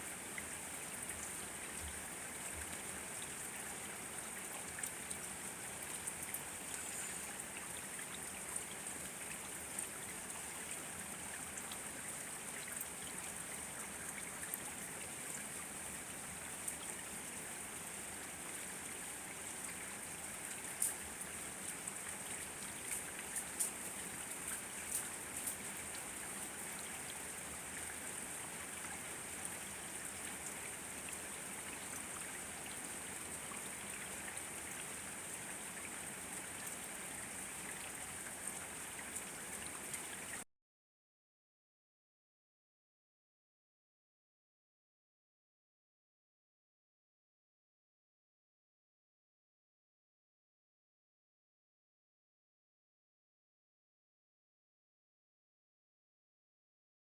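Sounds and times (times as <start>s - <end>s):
rain falling: 0.1s - 40.4s.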